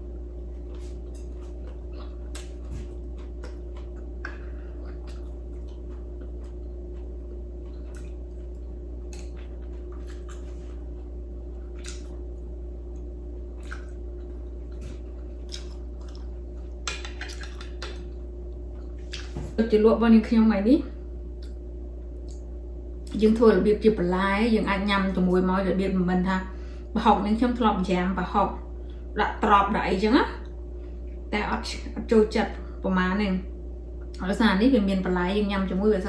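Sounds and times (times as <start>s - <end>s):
steady low hum: 0.0s - 36.0s
wet chewing sounds: 0.4s - 19.5s.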